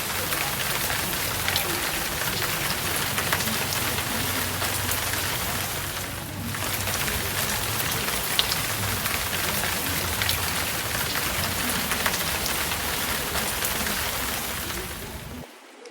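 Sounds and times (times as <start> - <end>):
heavy rain hiss: 0.0 - 15.9
raindrop ticks: 0.0 - 15.9.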